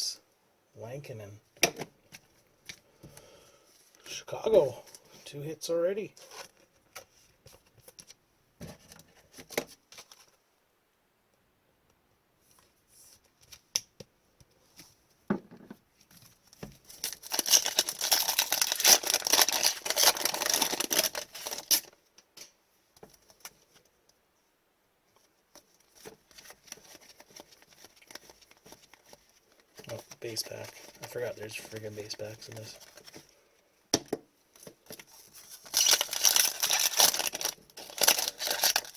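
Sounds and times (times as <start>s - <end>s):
card and wrapper rustling: 6.1s - 10.4s, 16.1s - 22.0s, 25.5s - 33.4s, 34.5s - 38.9s
foil wrapper crinkling: 16.9s - 22.0s, 25.9s - 33.2s, 34.6s - 38.9s.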